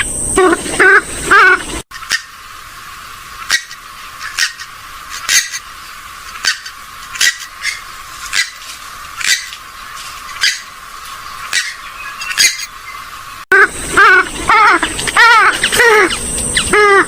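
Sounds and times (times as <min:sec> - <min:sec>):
wavering bird call: 0:06.4 - 0:08.6, 0:11.3 - 0:17.0.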